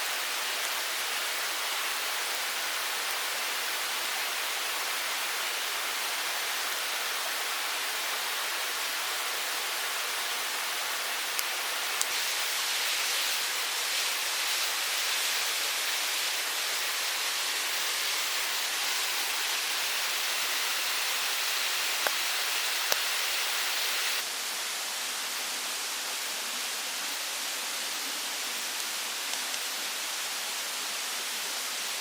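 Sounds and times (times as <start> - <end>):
mountain stream rushing: 0.0 - 24.3.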